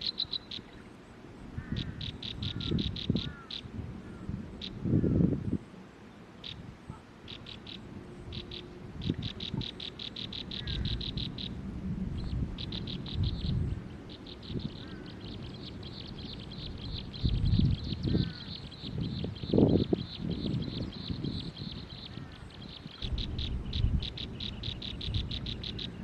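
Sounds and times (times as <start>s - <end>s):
songbird calling: 0.0s - 26.0s
low rumbling noise: 6.6s - 26.0s.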